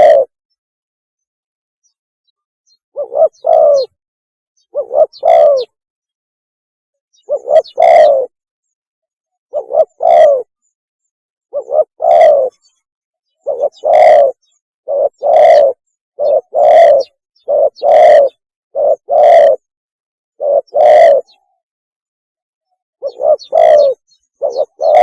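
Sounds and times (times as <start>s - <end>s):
dove cooing: 0.0s - 0.4s, 3.0s - 4.0s, 4.7s - 5.8s, 7.2s - 8.4s, 9.5s - 10.5s, 11.5s - 12.6s, 13.4s - 19.7s, 20.4s - 21.4s, 23.0s - 25.0s.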